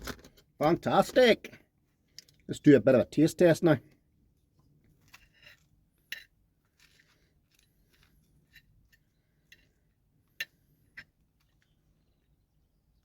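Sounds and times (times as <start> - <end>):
person eating muffin: 3.9 - 13.0.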